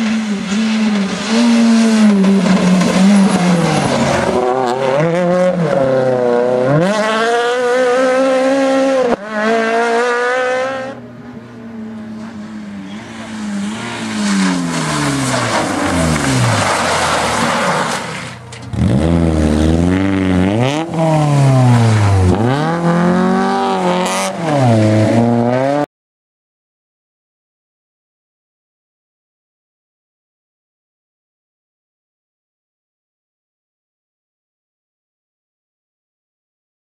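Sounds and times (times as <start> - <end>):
rally car engines revving: 0.0 - 25.9
car passing by: 12.1 - 18.4.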